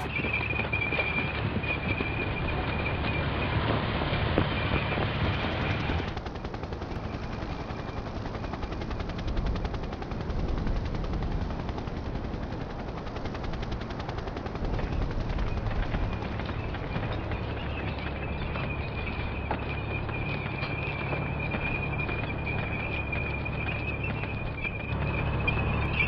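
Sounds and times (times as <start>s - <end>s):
rapid rattle of sharp clicks: 13.2s - 26.0s.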